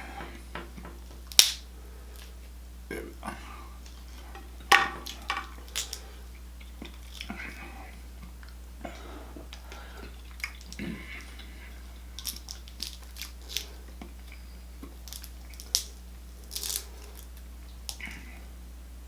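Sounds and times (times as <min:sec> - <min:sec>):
shells cracking by hand: 0:01.2 - 0:02.4, 0:03.8 - 0:06.1, 0:12.2 - 0:18.0.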